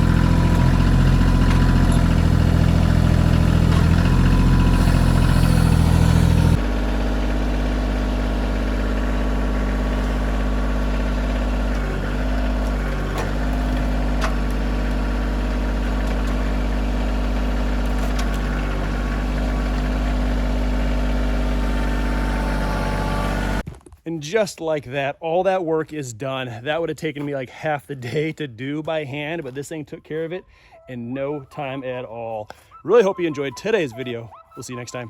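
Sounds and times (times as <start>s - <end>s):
tractor diesel engine running: 0.0s - 23.6s.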